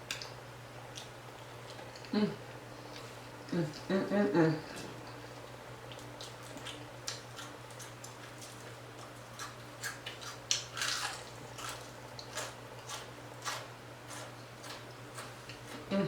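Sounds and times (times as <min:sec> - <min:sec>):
steady low hum: 0:00.0 - 0:16.0
person chewing crispy food: 0:05.1 - 0:15.9.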